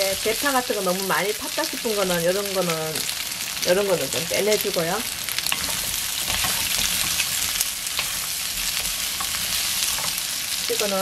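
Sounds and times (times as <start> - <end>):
food sizzling in a wok: 0.0 - 11.0
wooden spoon scraping: 5.4 - 10.6.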